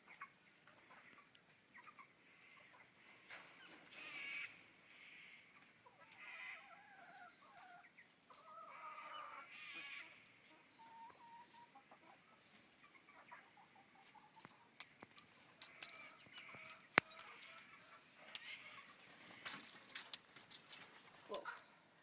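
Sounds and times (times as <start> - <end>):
sharp clicks: 14.8 - 17.7
parrots chattering: 15.2 - 19.6.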